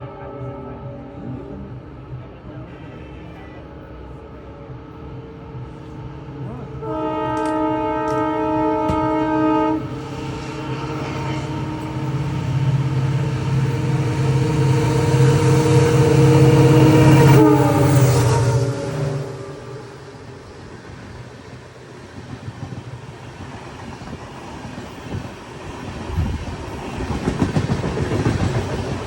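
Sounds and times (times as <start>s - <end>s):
train engine rumble: 0.0s - 29.0s
locomotive horn: 6.8s - 13.0s, 14.4s - 20.3s.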